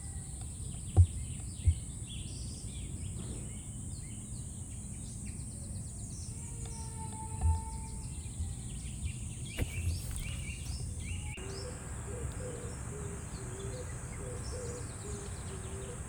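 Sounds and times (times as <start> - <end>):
small birds chirping: 0.0 - 16.0
steady high-pitched hiss: 8.6 - 16.0
dull low thumps: 9.5 - 15.6.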